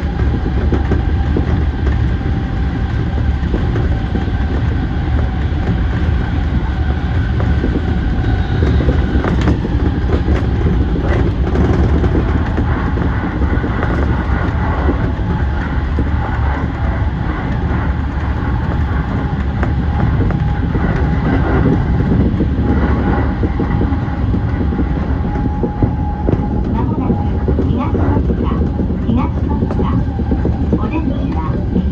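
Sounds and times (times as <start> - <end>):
train wheels rumbling on rail: 0.0 - 31.9
wheels clicking over rail joints: 0.0 - 31.9.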